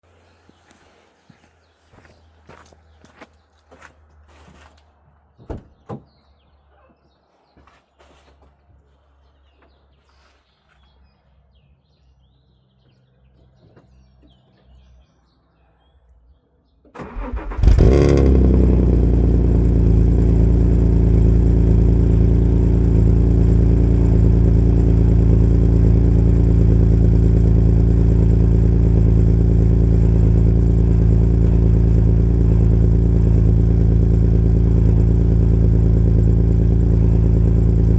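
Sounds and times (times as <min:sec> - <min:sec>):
car engine cranking and starting: 0:17.0 - 0:37.9
car engine idling loudly: 0:17.1 - 0:37.9.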